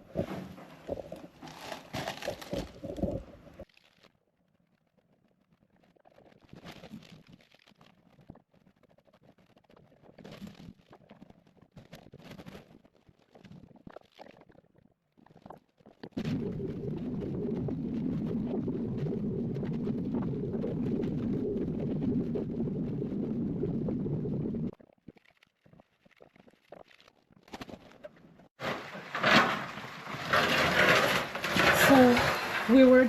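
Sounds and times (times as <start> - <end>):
low-pitched steady noise: 16.2 - 24.7.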